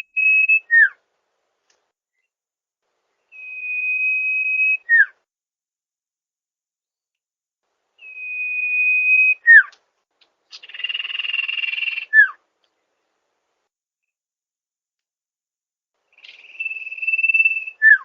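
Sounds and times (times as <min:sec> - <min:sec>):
bird whistling song: 0:00.0 - 0:01.0, 0:03.2 - 0:05.2, 0:08.0 - 0:09.8, 0:10.5 - 0:12.4, 0:16.1 - 0:18.0.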